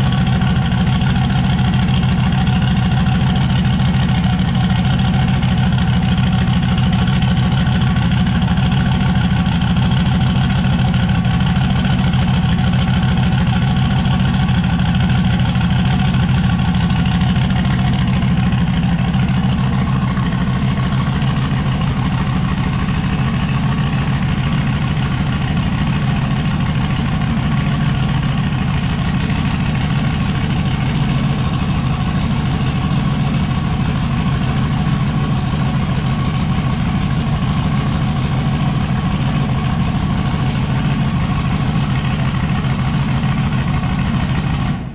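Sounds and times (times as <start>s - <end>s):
engine idling loudly: 0.0s - 44.9s.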